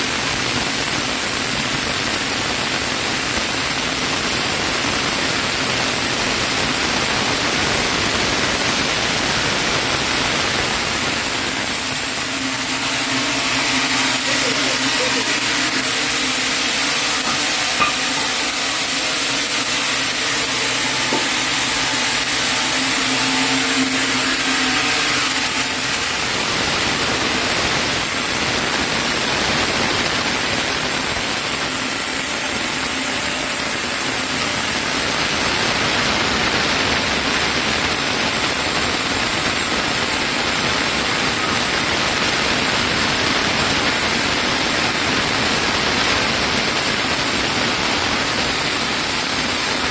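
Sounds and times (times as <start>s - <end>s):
motor hum: 9.8s - 37.0s
saw machinery rushing noise: 10.0s - 37.0s.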